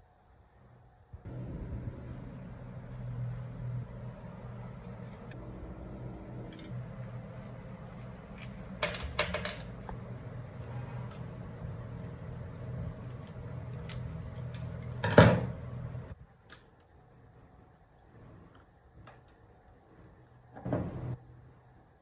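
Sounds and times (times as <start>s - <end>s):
low machine hum: 1.2s - 16.2s.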